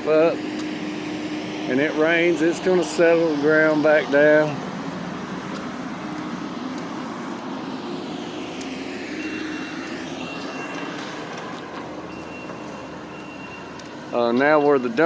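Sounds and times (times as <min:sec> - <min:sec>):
vehicle passing: 0:00.0 - 0:15.0
truck reversing alarm beeps: 0:08.2 - 0:15.0.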